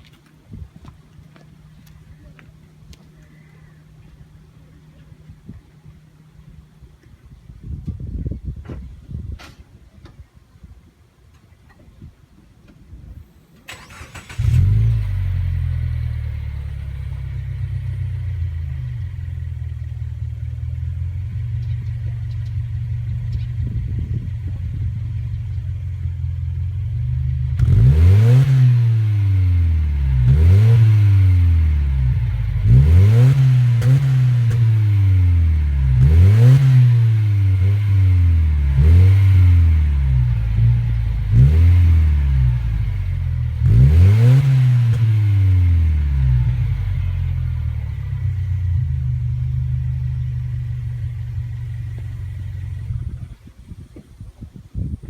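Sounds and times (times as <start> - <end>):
car engine starting and idling: 13.4 - 53.5
car engine revving: 13.7 - 53.2.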